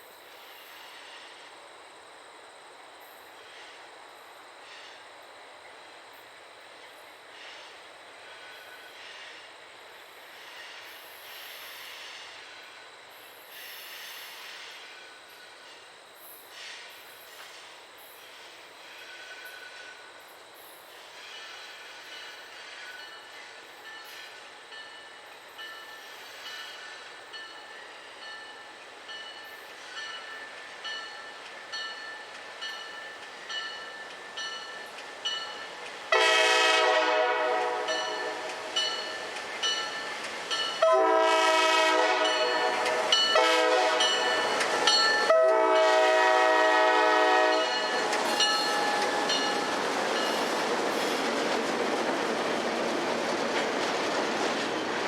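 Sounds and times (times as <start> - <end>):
train rumbling past: 0.0 - 55.0
locomotive air horn: 36.1 - 38.7, 40.8 - 44.6, 45.2 - 48.1
crossing bell dings: 44.0 - 45.3, 47.5 - 50.4.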